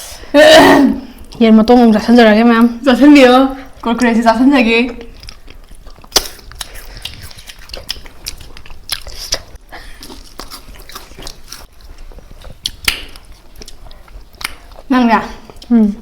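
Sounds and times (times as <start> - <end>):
chewing and biting chicken: 5.1 - 14.9.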